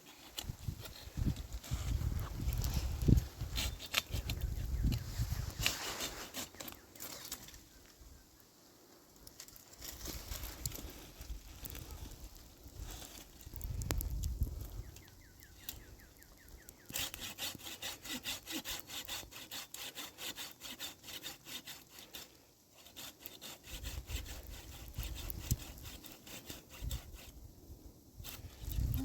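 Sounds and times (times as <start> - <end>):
hand saw cutting wood: 3.0 - 7.4, 16.8 - 27.3.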